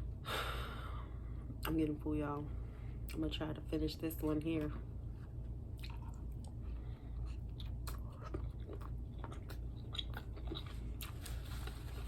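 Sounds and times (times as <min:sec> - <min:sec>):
steady low hum: 0:00.0 - 0:12.0
person chewing food: 0:05.0 - 0:12.0.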